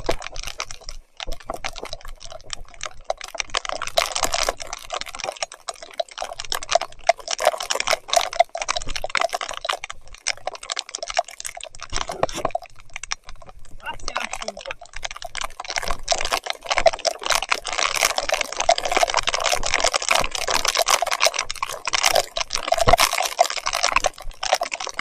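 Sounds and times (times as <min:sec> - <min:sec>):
clicking and crackling: 0:00.0 - 0:25.0
wet spatter: 0:13.8 - 0:14.9.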